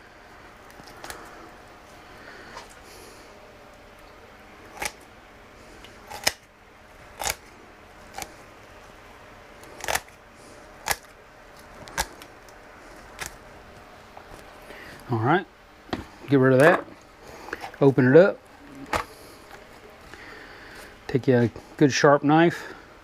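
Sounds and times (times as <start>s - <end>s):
kitchen shears snipping bone: 4.7s - 5.1s, 5.8s - 6.5s, 7.1s - 7.5s, 8.1s - 8.4s, 9.6s - 10.2s, 10.8s - 13.4s.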